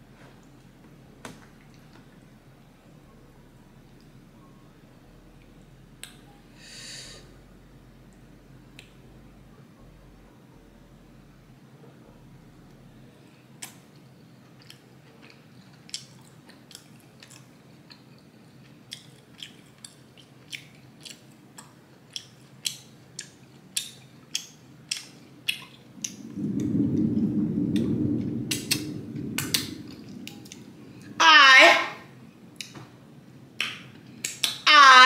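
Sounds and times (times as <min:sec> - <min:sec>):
wet chewing mouth sounds: 0:13.6 - 0:26.2
louder low sound: 0:26.0 - 0:31.2.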